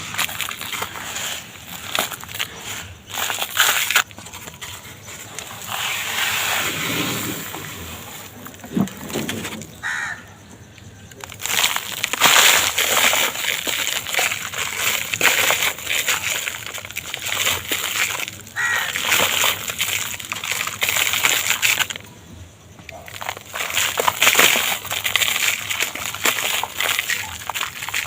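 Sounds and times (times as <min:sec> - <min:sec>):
dry material crumbling: 0:00.0 - 0:06.2, 0:11.1 - 0:22.0, 0:22.8 - 0:28.0.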